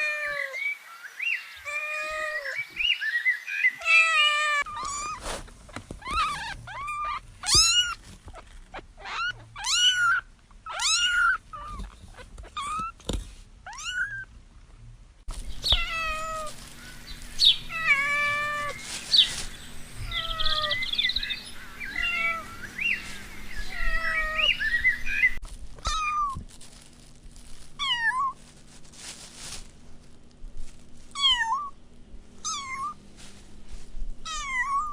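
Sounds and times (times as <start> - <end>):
kittens mewing: 3.8 - 13.0, 15.6 - 26.4, 32.4 - 33.0, 34.3 - 34.9
steady low hum: 14.3 - 34.9.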